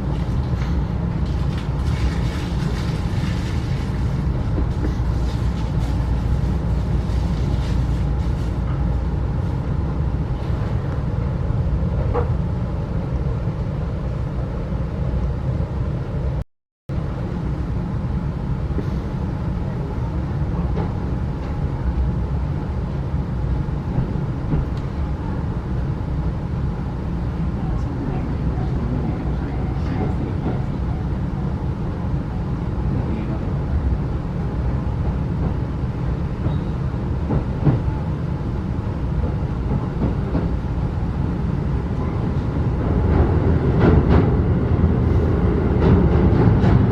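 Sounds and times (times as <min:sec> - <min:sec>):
train coach rumbling on rails: 0:00.0 - 0:46.9.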